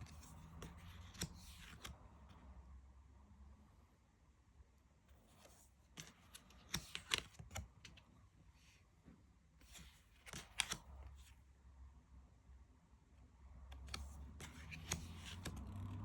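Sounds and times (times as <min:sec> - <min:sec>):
cards being flipped: 0:00.0 - 0:02.0, 0:05.3 - 0:08.0, 0:09.6 - 0:11.3, 0:13.7 - 0:16.0.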